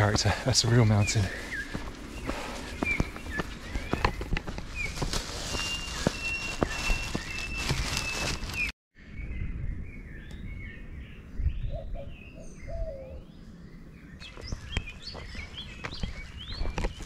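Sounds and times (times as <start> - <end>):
footsteps: 0.0 - 8.7
wild birds singing: 0.0 - 17.0.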